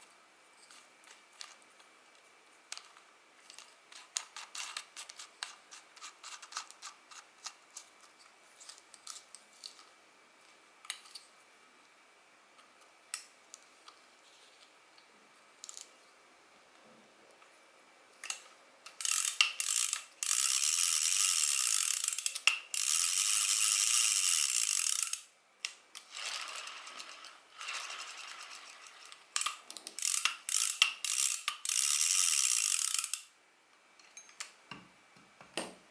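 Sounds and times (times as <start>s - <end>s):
fishing reel ratcheting clicks: 18.3s - 25.3s, 26.0s - 33.3s.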